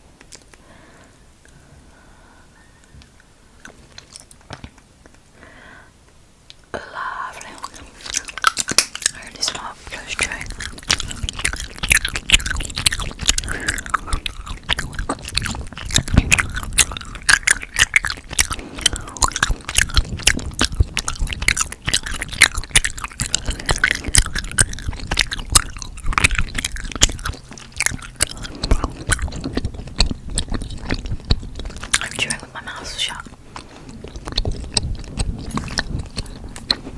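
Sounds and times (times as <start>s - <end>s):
gum chewing mouth clicks: 0.2s - 0.6s, 3.6s - 5.2s, 6.5s - 36.9s.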